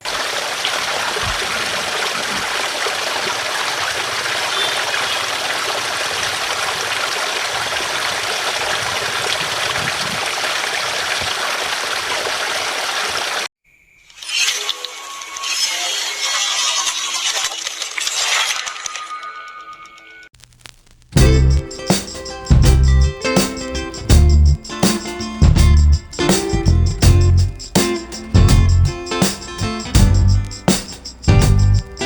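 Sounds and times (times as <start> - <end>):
flowing water rushing: 0.0 - 13.5.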